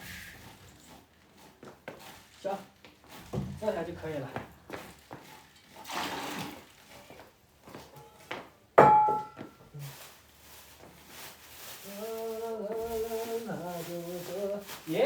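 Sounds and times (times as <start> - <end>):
hard object clanking: 8.8 - 9.4.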